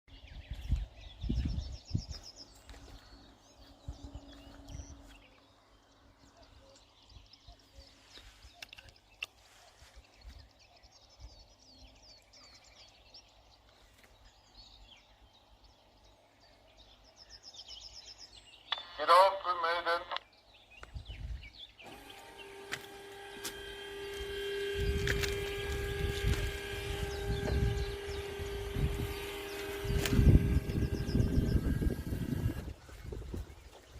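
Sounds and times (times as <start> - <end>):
wind gusts on microphone: 0.1 - 2.3, 20.9 - 21.6, 24.6 - 33.9
small birds trilling: 0.1 - 33.9.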